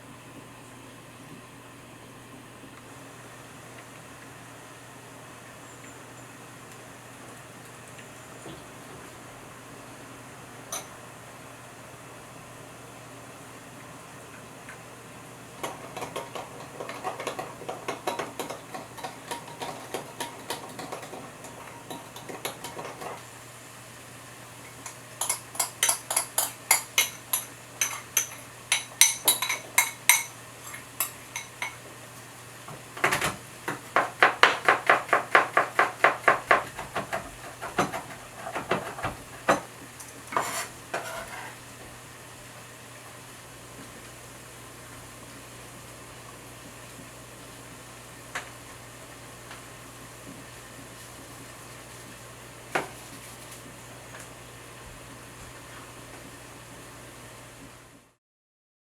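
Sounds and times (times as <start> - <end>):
utensils clicking against a bowl: 15.6 - 23.2, 24.7 - 31.8.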